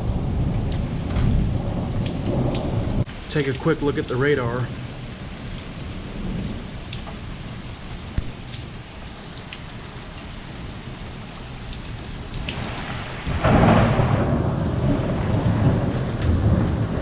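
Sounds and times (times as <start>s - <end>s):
thunder rumble: 0.0s - 8.3s, 12.4s - 17.0s
heavy rain falling: 0.0s - 17.0s
raindrops ticking close by: 0.0s - 17.0s.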